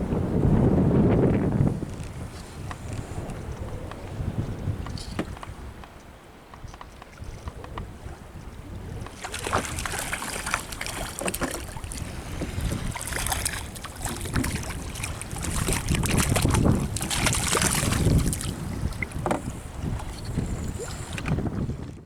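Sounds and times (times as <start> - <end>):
water slapping boat hull: 0.0 - 22.0
wind gusting on microphone: 0.0 - 22.0
small knocks: 19.2 - 19.5.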